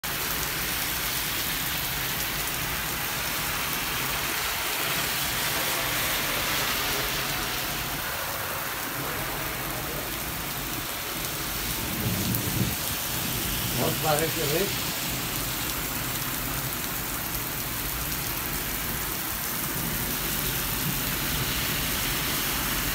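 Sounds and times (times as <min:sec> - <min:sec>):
heavy rain on pavement: 0:00.0 - 0:22.9
low rumble with thump: 0:12.0 - 0:12.9.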